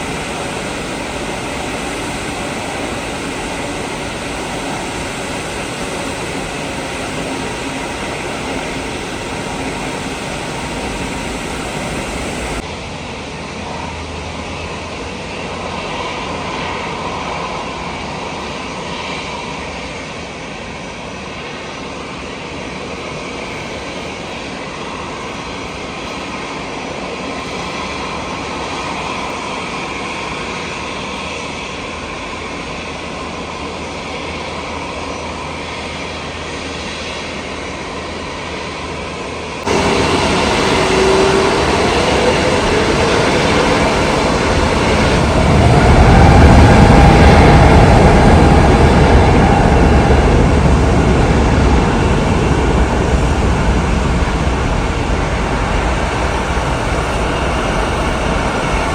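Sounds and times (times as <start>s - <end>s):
rising whine: 0.0s - 18.2s, 36.3s - 58.9s
jet engines running: 0.0s - 58.9s.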